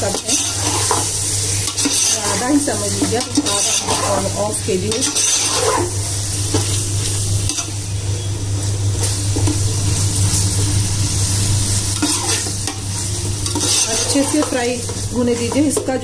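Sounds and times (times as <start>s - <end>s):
chicken sizzling in oil: 0.0s - 16.0s
steady low hum: 0.0s - 16.0s
metal ladle scraping pot: 1.6s - 6.0s, 13.4s - 14.6s.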